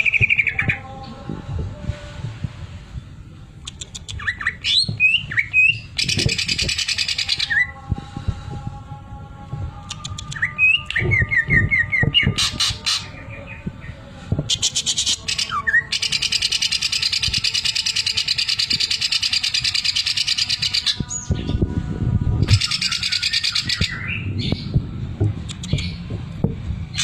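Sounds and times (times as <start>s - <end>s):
bird singing with rapid rattle: 0.0s - 0.8s, 3.6s - 7.7s, 9.9s - 13.8s, 14.5s - 21.6s, 22.4s - 24.8s, 25.4s - 26.1s
low thuds: 23.6s - 27.0s.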